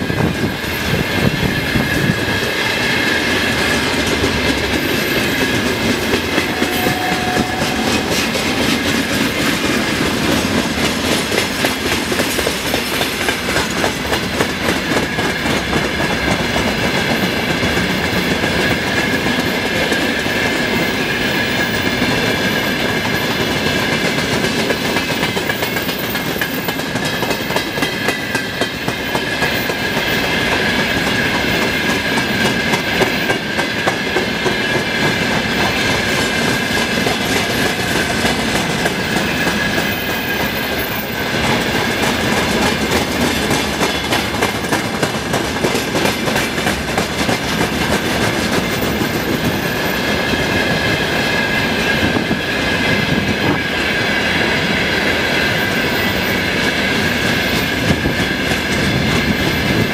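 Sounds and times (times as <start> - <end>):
high ringing tone: 6.4 - 8.9
wheels clattering over rail joints: 31.5 - 49.7.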